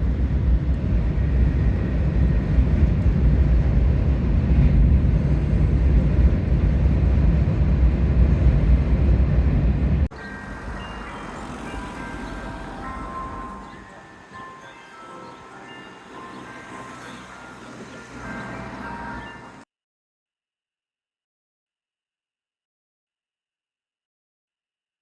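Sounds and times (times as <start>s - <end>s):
train rumbling: 0.0s - 19.6s.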